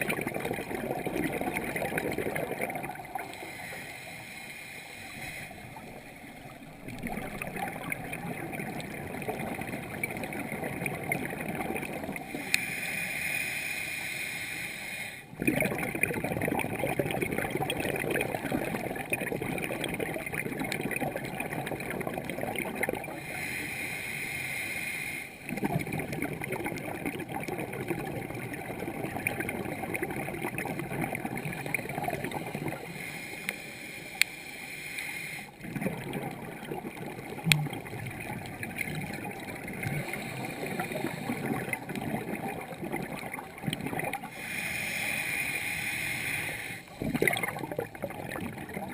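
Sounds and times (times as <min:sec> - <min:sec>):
gurgling exhaled bubbles: 0:00.0 - 0:03.6, 0:05.6 - 0:12.5, 0:15.3 - 0:23.3, 0:25.4 - 0:33.0, 0:35.5 - 0:44.5, 0:46.9 - 0:48.9
hissing regulator inhales: 0:03.2 - 0:06.5, 0:12.3 - 0:15.3, 0:23.2 - 0:25.4, 0:32.8 - 0:35.6, 0:44.3 - 0:47.0.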